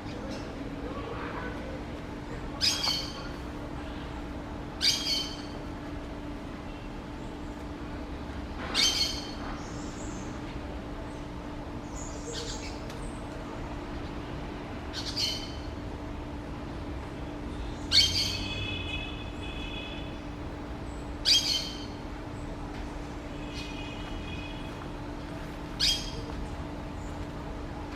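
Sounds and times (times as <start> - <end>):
bird calling: 21.2 - 22.0, 25.8 - 26.3.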